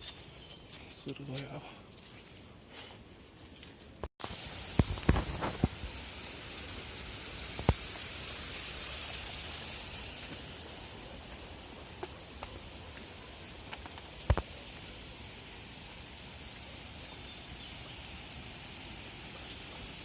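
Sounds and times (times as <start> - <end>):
rain falling soft hiss: 4.2 - 20.0.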